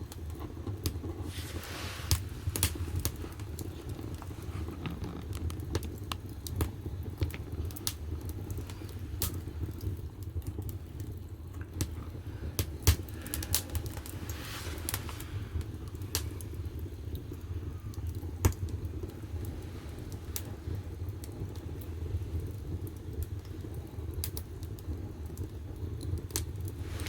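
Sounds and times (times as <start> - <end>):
fire crackling and popping: 0.0 - 27.0
low rumble of fire: 0.0 - 27.0
brief hiss: 1.3 - 2.2.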